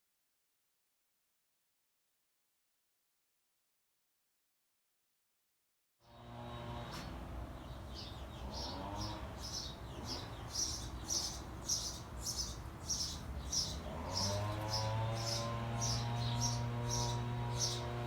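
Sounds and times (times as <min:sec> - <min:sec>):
bird chirping: 0:07.6 - 0:18.0.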